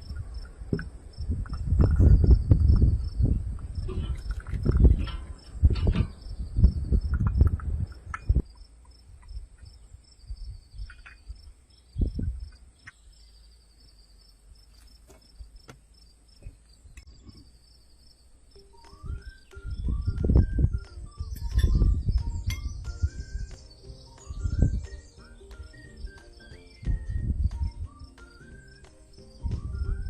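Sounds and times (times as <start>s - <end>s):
crickets chirping: 0.0s - 30.0s
music: 18.6s - 30.0s.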